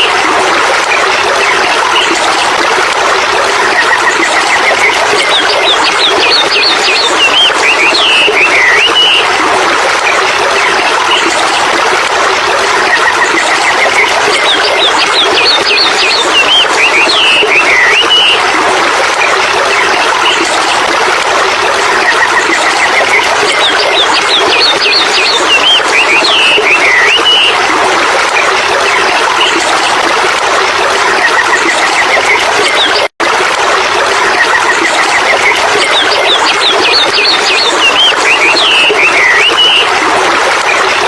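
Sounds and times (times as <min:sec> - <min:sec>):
running water rushing: 0:00.0 - 0:41.0.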